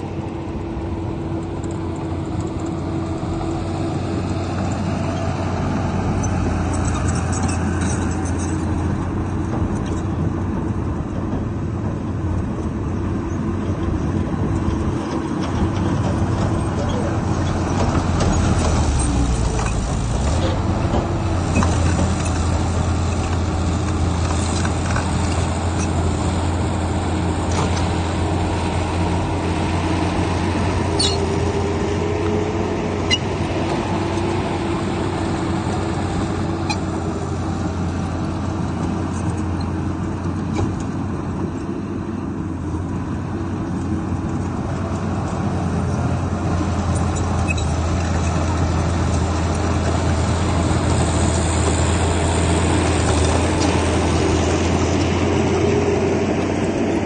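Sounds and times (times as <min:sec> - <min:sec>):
diesel machinery running: 0:00.0 - 0:57.0.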